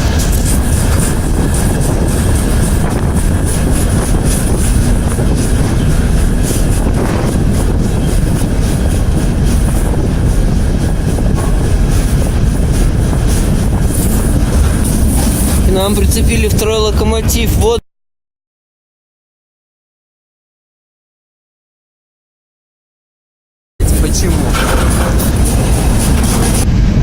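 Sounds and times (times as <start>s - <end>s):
freight train rumbling: 0.0s - 17.8s, 23.8s - 27.0s.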